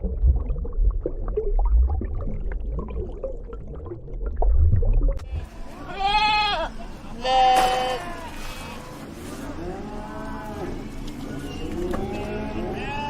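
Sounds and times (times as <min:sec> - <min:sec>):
low rumbling: 0:00.0 - 0:05.8
farm animals gurgling: 0:05.2 - 0:13.0
drawn-out livestock call: 0:05.7 - 0:13.0.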